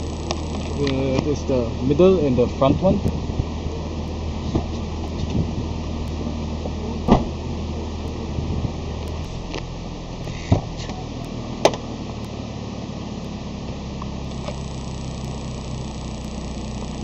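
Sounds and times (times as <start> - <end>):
sharp clicks: 0.0 - 1.3, 9.0 - 10.5, 14.0 - 17.0
car engine idling: 0.0 - 17.0.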